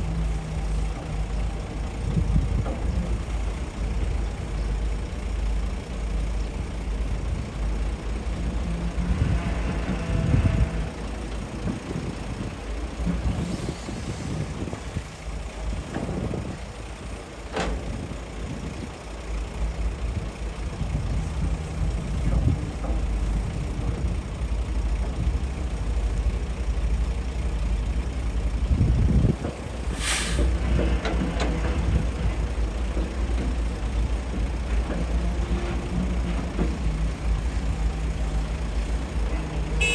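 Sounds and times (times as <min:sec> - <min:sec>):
heavy diesel engines rumbling: 0:00.0 - 0:39.9
sharp hiss: 0:29.9 - 0:30.6.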